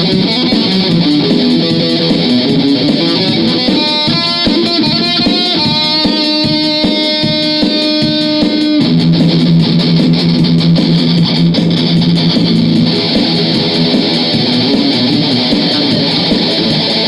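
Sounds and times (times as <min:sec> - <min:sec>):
electric guitar riffing: 0:00.0 - 0:17.0.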